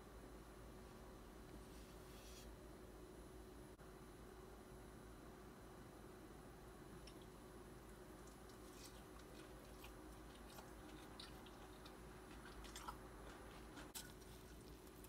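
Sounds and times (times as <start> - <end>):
quiet room hum: 0.0 - 15.0
crunchy chewing: 7.0 - 15.0.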